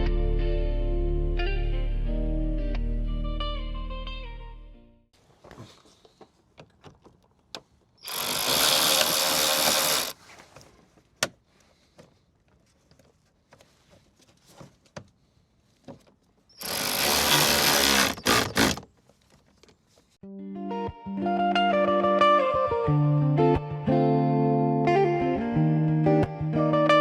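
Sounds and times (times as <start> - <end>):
power tool running: 8.0 - 10.2, 16.6 - 18.8.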